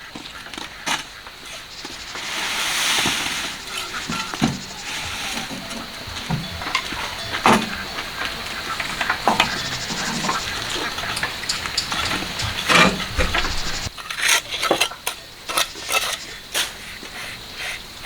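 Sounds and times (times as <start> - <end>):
metal tool scraping and clinking: 3.4 - 16.3.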